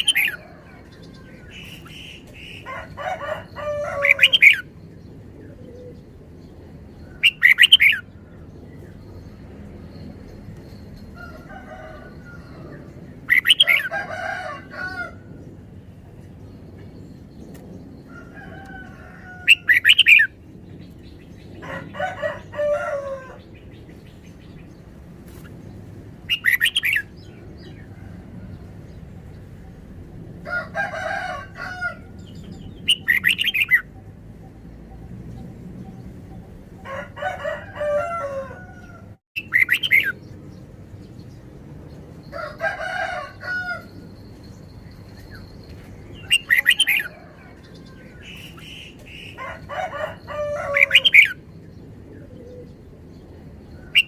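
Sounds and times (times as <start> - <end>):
bulbul singing bright phrases: 32.3 - 33.9, 39.4 - 40.2.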